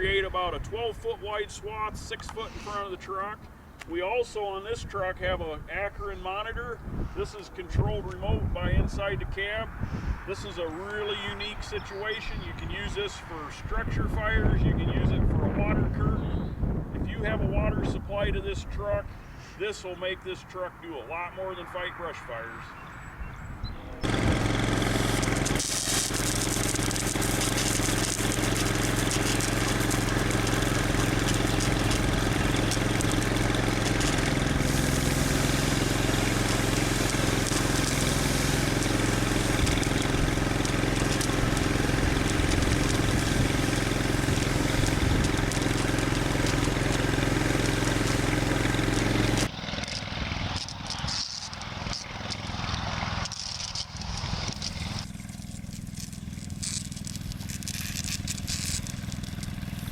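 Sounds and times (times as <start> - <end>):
loud even hiss: 24.0 - 49.5
fire truck engine running: 24.0 - 59.9.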